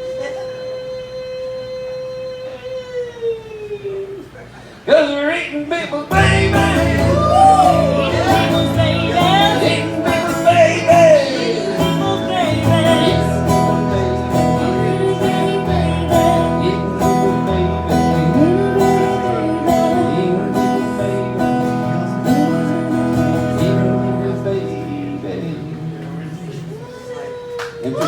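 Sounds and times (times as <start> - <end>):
acoustic guitar strumming: 6.1 - 28.0
person singing: 6.1 - 28.0.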